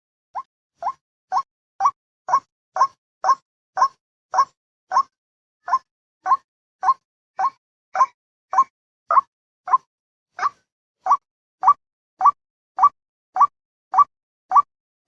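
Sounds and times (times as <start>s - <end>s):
recorded waterhen call: 0.4s - 5.1s, 10.4s - 14.7s.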